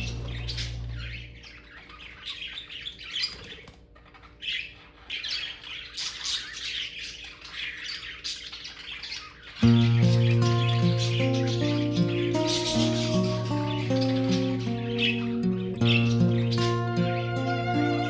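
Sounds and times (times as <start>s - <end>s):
budgerigars chirping and chattering: 0.0s - 18.0s
background music: 9.6s - 18.0s.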